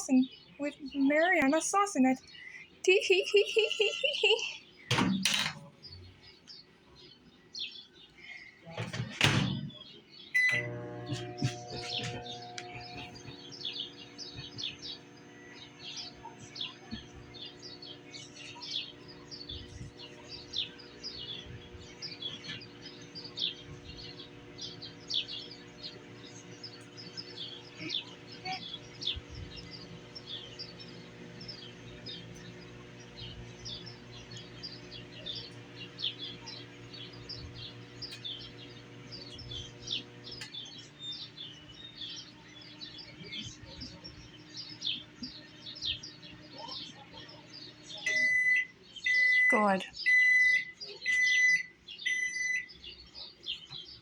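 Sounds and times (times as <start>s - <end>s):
microwave oven humming: 0.0s - 6.4s, 8.8s - 54.0s.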